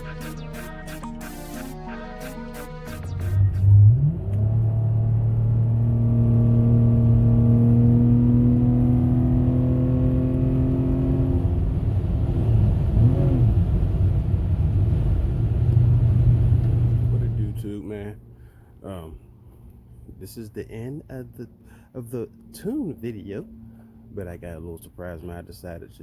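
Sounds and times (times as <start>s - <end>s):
road rumble: 3.0s - 26.0s
car engine under load: 3.2s - 20.2s.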